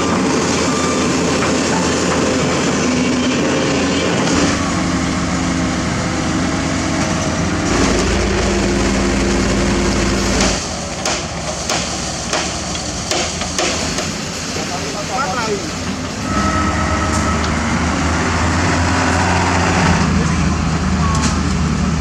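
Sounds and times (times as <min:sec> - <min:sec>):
diesel construction machinery running: 0:00.0 - 0:22.0.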